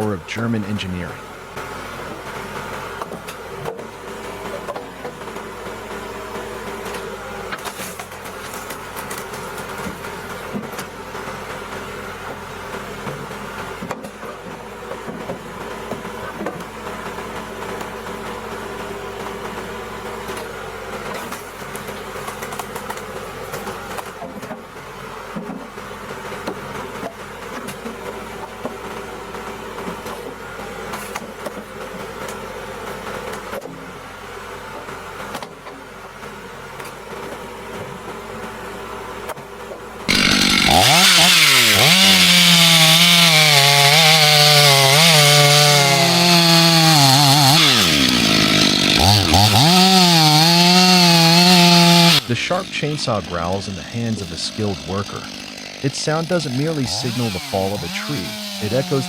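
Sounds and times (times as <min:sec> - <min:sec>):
wood splitter engine hum: 0:00.0 - 0:59.0
logs knocking and cracking: 0:40.1 - 0:52.3.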